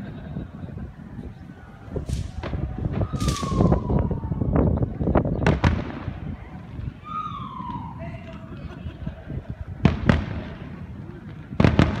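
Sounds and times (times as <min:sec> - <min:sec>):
fireworks cracking and banging: 0:01.9 - 0:04.2, 0:05.0 - 0:07.0, 0:09.7 - 0:12.0.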